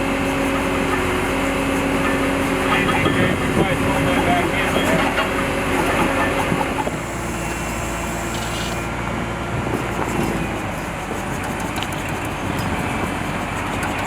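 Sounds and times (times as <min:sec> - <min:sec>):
engine running with low hum: 0:00.0 - 0:14.0
outdoor noise: 0:00.0 - 0:14.0.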